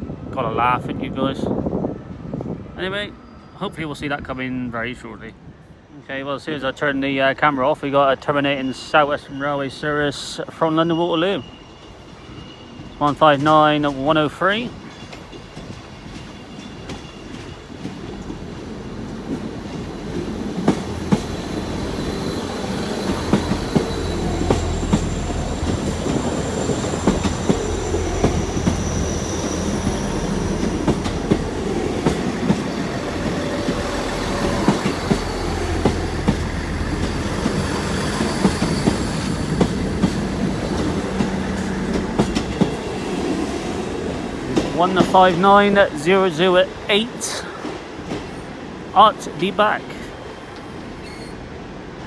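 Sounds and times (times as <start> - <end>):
wheels clicking over rail joints: 19.3 - 45.5
diesel engine hum: 20.2 - 42.9
high-pitched wheel squeal: 21.2 - 31.6, 51.0 - 51.4.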